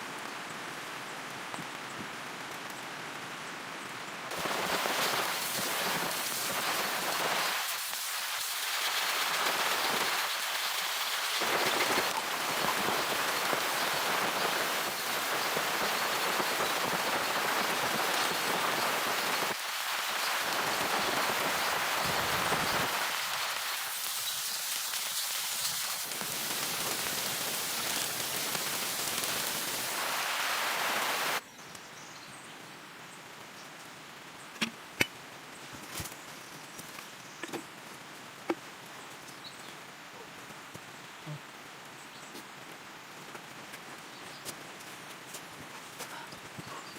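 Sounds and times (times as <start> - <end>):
heavy rain hissing: 4.3 - 31.4.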